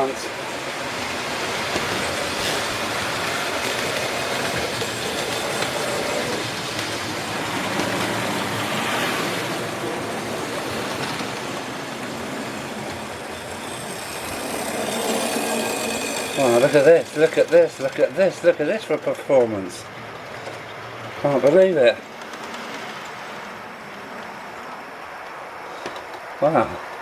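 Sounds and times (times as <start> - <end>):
model train motors and wheels: 0.0 - 27.0.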